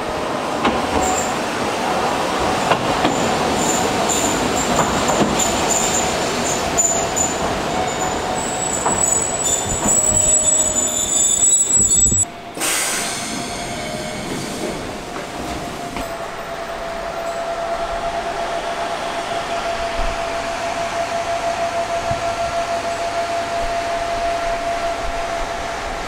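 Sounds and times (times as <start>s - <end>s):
rail noise: 0.0s - 26.0s
standing train hum: 0.0s - 26.0s
train wheels squealing: 1.0s - 1.4s, 3.0s - 15.0s.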